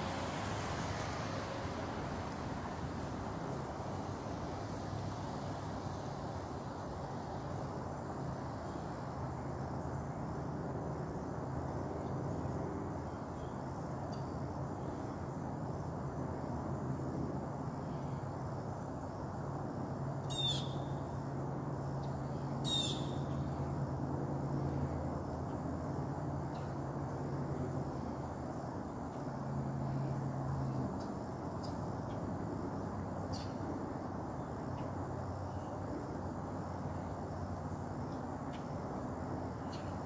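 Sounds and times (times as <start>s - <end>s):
high downward bird calls: 20.3s - 20.8s, 22.6s - 23.2s.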